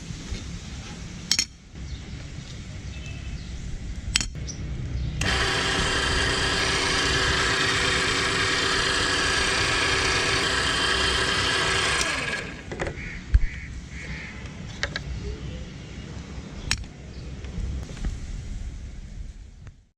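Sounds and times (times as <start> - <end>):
machine motor whining: 5.2 - 12.8
scattered clicks: 5.2 - 12.8.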